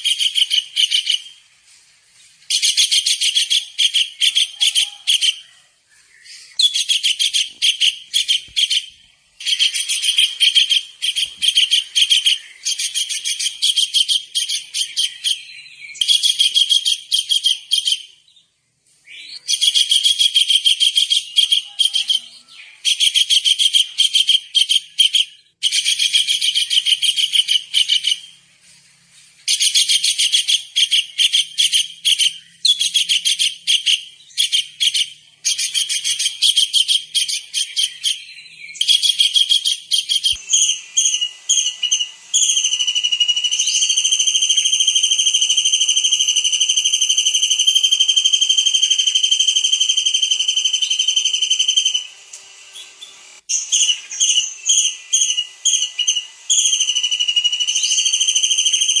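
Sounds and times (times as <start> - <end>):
long high whistle: 40.2 - 52.2.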